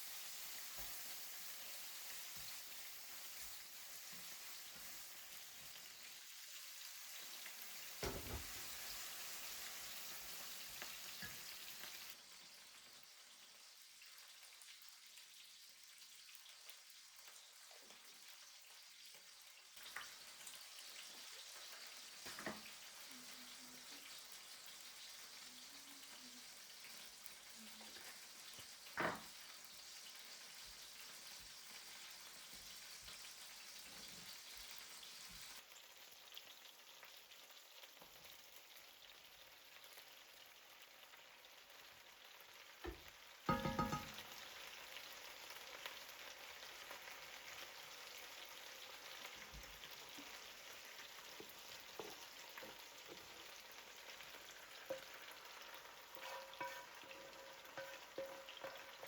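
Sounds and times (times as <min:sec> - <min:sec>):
food sizzling in a pan: 0:00.0 - 0:59.0
soft utensil knocks: 0:43.5 - 0:44.2.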